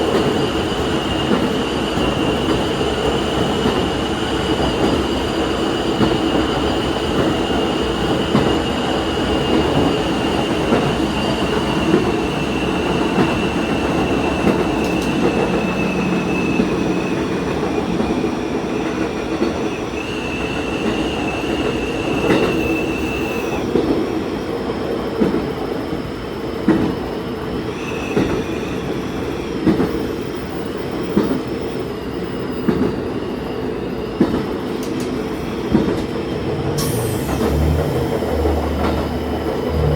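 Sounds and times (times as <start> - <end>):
railcar running noise: 0.0 - 39.9
high engine whine: 11.2 - 18.7, 36.3 - 39.9
wheels clacking over rail joints: 34.2 - 39.9.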